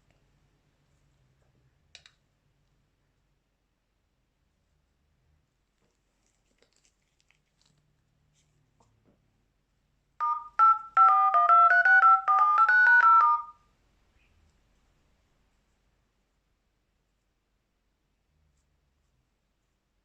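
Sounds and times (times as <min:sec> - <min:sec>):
electronic chime melody: 0:10.2 - 0:13.6.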